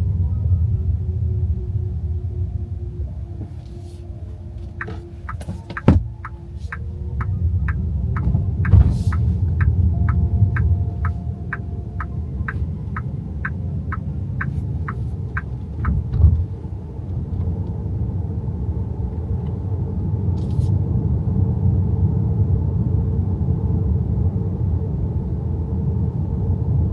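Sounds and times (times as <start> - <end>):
road and tyre rumble in car: 0.0 - 26.9
turn signal ticking: 4.8 - 16.2
thump: 8.2 - 9.3.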